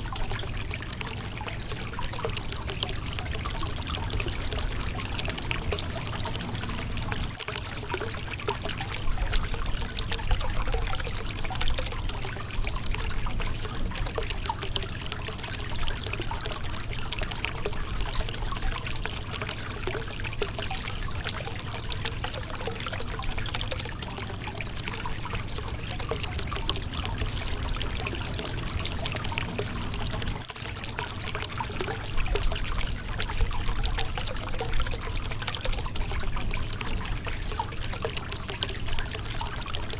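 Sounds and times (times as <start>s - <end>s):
river water splashing over rocks: 2.4s - 7.9s, 24.6s - 39.9s.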